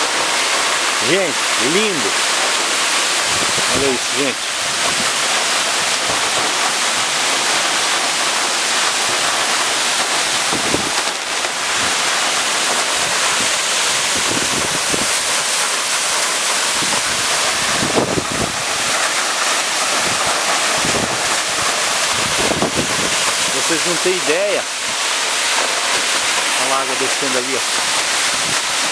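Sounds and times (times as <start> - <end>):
waterfall roaring: 0.0 - 28.9
wind buffeting microphone: 3.2 - 5.4, 10.4 - 11.1, 13.0 - 15.4, 16.7 - 19.1, 19.9 - 23.6, 27.7 - 28.9.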